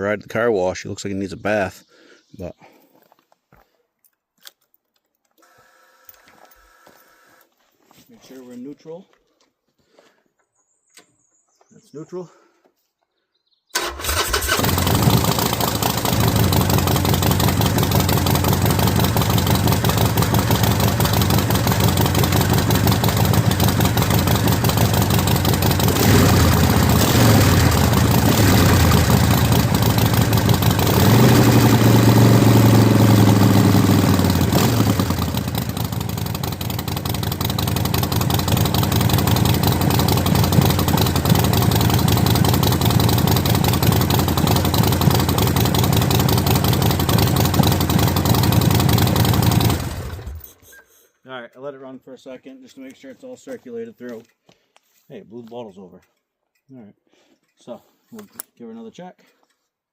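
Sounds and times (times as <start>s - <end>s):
motorcycle engine idling and revving: 13.8s - 50.7s.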